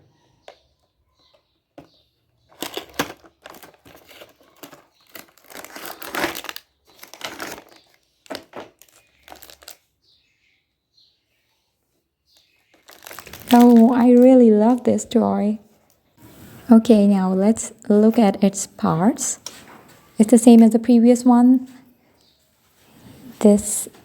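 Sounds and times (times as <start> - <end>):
packaging crinkling and tearing: 2.5 - 9.9, 12.4 - 14.4.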